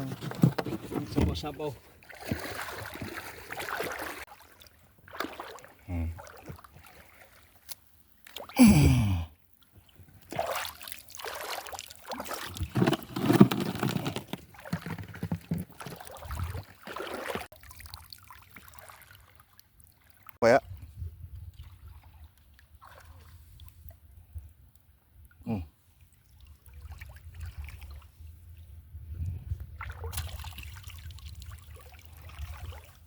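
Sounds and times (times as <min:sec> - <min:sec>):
water sloshing and splashing: 0:00.0 - 0:08.6, 0:09.7 - 0:20.4, 0:26.2 - 0:28.2, 0:29.7 - 0:33.0.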